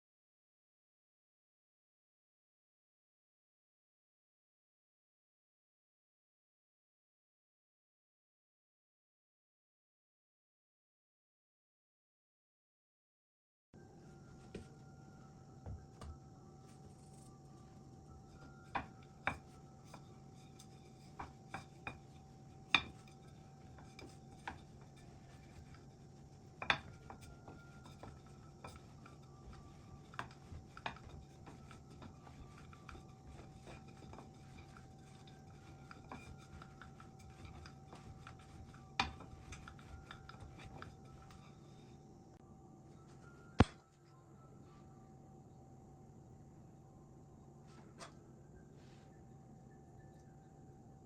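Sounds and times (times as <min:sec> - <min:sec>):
faint steady hum: 0:13.8 - 0:51.0
dishes and utensils clinking: 0:18.1 - 0:42.0.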